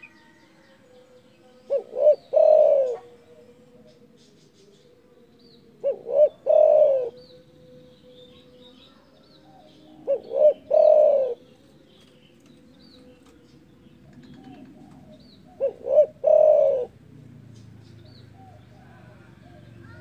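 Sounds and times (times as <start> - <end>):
small birds chirping: 0.0 - 20.0
dove cooing: 1.5 - 4.8, 5.7 - 7.4, 9.4 - 12.2, 13.1 - 20.0.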